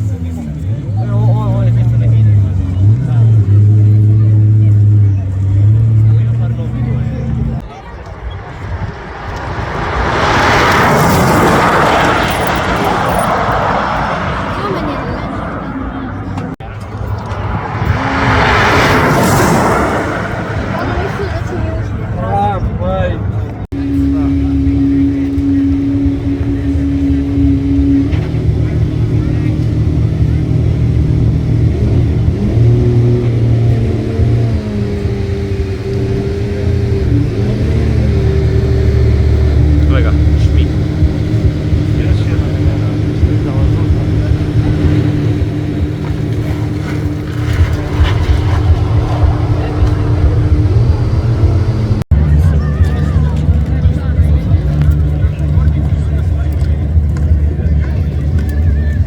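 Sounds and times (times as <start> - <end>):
car whooshing past: 7.6 - 23.9, 25.5 - 52.7.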